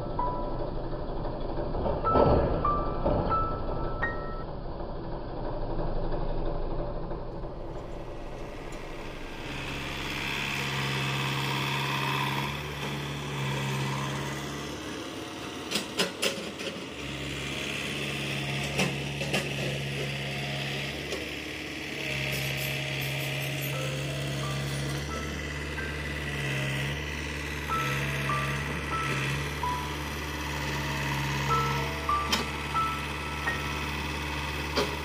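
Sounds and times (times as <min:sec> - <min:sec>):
earth-moving machine engine running: 0:00.0 - 0:35.0.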